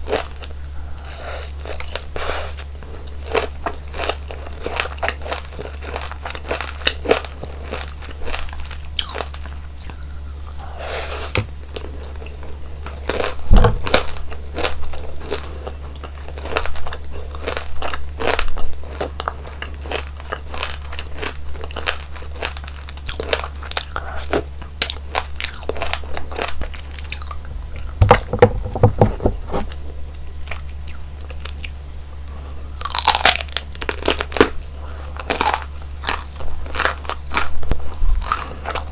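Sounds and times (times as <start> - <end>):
crunchy chewing: 0.0 - 28.5, 29.1 - 38.9.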